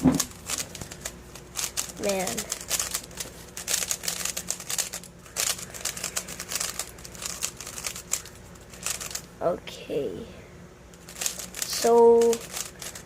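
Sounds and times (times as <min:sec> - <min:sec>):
clicky plastic puzzle cube turning: 0:11.1 - 0:13.0.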